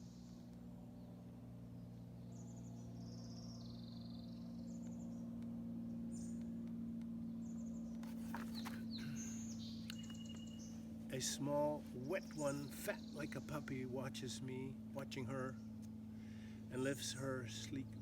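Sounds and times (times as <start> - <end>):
steady low hum: 0.0 - 18.0
birds chirping: 7.4 - 14.0.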